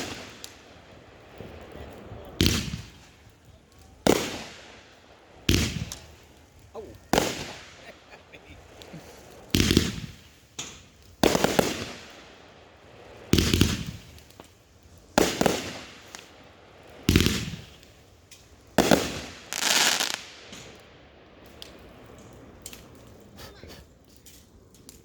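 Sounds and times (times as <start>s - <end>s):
firework hissing tail: 0.0s - 1.6s, 2.3s - 20.8s
fireworks booming: 0.0s - 20.8s.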